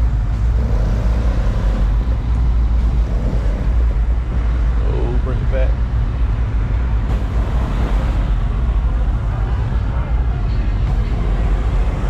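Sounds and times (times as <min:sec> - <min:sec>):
steady low rumble: 0:00.0 - 0:12.0
indistinct voices: 0:07.1 - 0:12.0.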